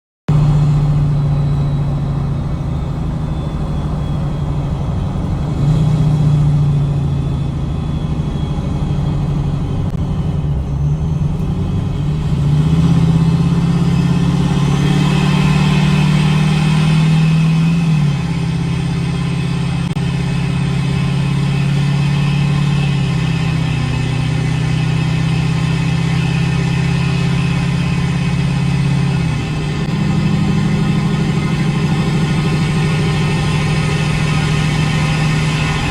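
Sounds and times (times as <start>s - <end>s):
diesel engine running under load: 0.3s - 35.9s
high turbo whistle: 0.3s - 35.9s.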